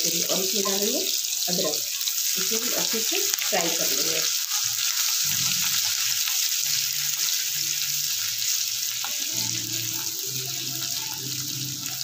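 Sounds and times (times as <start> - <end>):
garlic sizzling in hot oil: 0.0 - 12.0.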